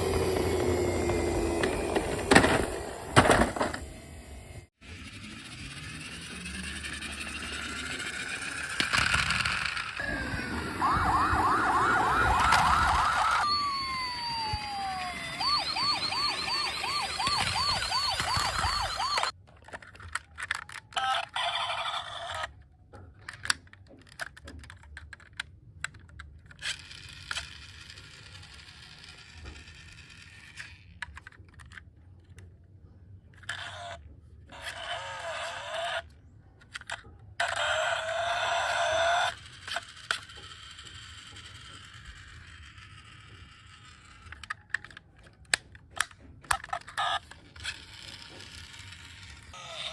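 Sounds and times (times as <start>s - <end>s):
toy siren yelping: 5.7s - 19.4s, 20.9s - 22.5s, 33.5s - 36.2s, 37.4s - 45.3s, 45.9s - 49.9s
higher wavering siren: 10.0s - 19.3s
plastic clicks and rattles: 19.4s - 21.0s, 22.9s - 27.4s, 31.0s - 32.5s, 44.2s - 48.9s.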